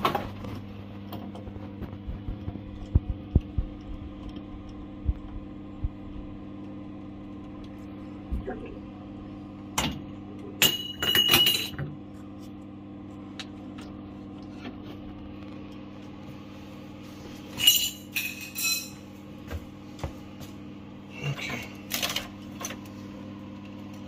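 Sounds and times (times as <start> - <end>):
steady low hum: 0.0 - 24.0
metal tools clinking on pipes: 10.6 - 11.8, 17.5 - 19.0.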